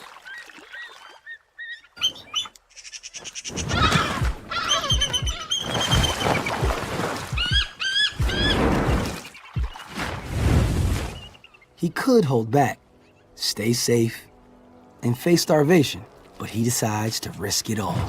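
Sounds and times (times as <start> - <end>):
eagles chirping whistles: 1.2 - 6.6, 7.4 - 9.9
eagles fighting with thuds: 3.5 - 11.2.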